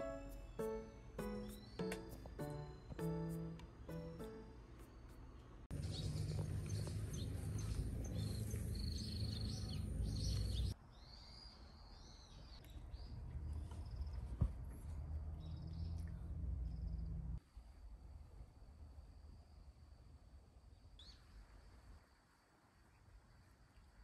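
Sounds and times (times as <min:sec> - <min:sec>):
small birds chirping: 0:00.0 - 0:04.5, 0:05.7 - 0:14.3.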